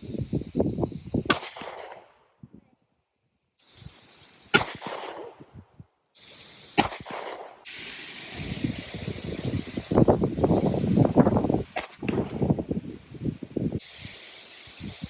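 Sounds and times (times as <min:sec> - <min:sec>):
gunshots with echo: 0:01.3 - 0:02.1, 0:04.5 - 0:05.5, 0:06.8 - 0:07.6.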